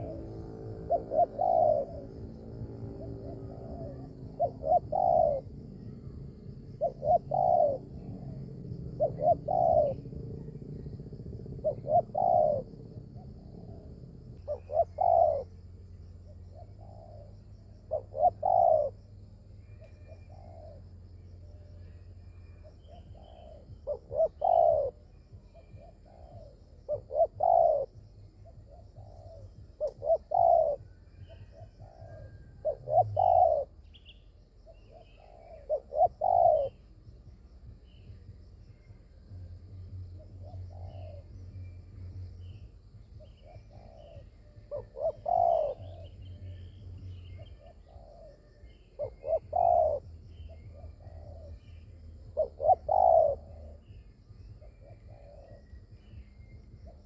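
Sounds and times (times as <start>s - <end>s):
doves cooing: 0.0s - 57.0s
low steady hum: 0.0s - 57.0s.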